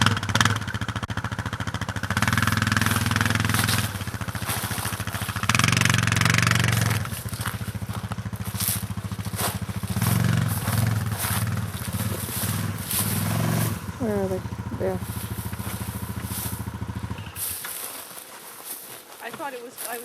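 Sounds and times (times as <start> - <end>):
atv engine revving under load: 0.0 - 18.2.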